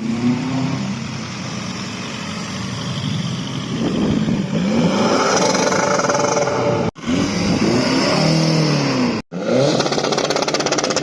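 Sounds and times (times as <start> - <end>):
car engine revving: 4.0 - 11.0.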